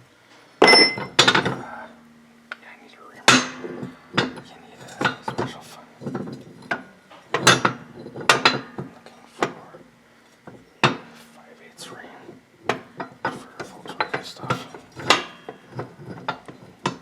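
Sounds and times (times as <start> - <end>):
metal tools clanking: 0.6 - 1.7, 3.3 - 9.6, 12.7 - 17.0.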